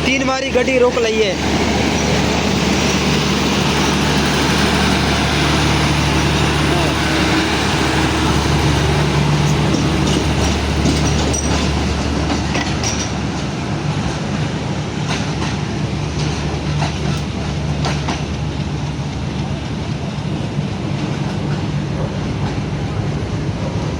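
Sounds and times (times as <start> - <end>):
diesel engine drone: 0.0 - 13.7
wheels clicking over rail joints: 6.5 - 19.3.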